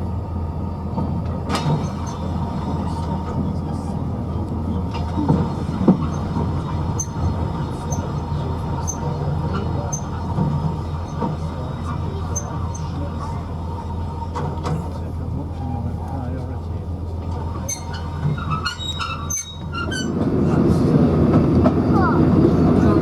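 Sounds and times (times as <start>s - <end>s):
train rumbling on track: 0.0s - 23.0s.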